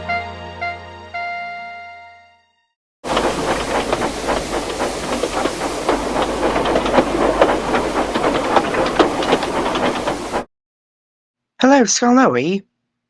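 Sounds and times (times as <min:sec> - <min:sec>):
steam hiss: 0:03.1 - 0:10.5
train wheels clattering over rail joints: 0:03.1 - 0:10.5.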